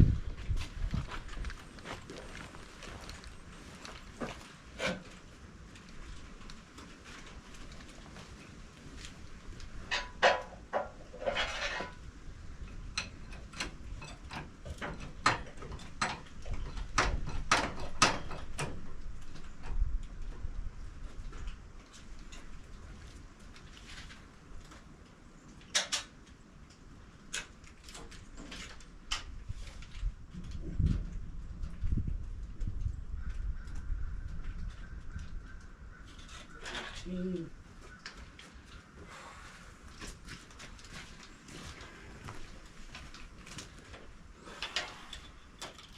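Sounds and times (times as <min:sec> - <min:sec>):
metal clicks and knocks: 0:12.7 - 0:19.8.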